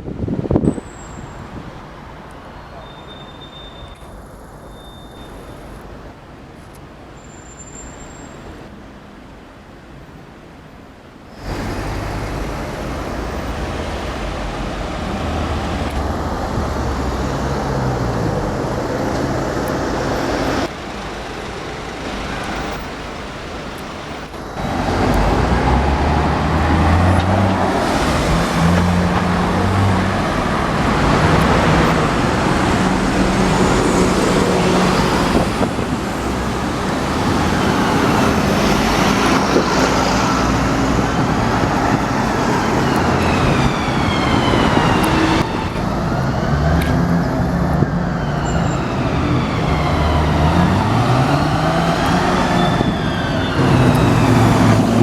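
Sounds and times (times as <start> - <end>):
car engines passing: 11.3 - 55.0.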